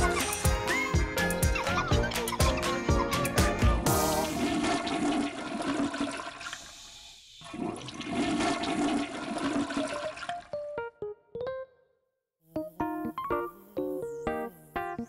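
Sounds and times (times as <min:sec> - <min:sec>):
toilet flushing: 0:03.9 - 0:10.5.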